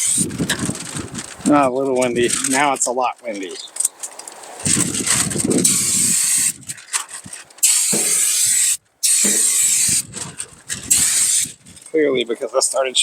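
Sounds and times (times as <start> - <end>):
wind rumbling on microphone: 0.0 - 13.0
aerosol spray paint hissing: 5.6 - 6.6, 7.6 - 10.1, 10.9 - 11.6.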